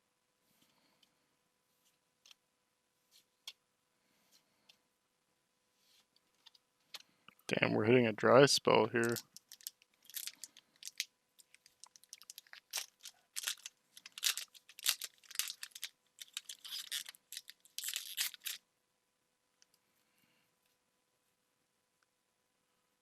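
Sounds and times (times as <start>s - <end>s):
cards rustling: 9.0s - 18.6s
foil wrappers crinkling and tearing: 9.0s - 18.6s.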